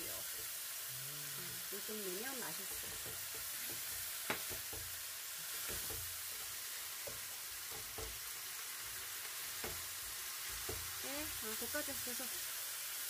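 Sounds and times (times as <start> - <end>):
food sizzling in a wok: 0.0 - 13.0
utensil knocks and scrapes on pan: 2.6 - 5.0, 5.6 - 8.3, 9.6 - 11.0.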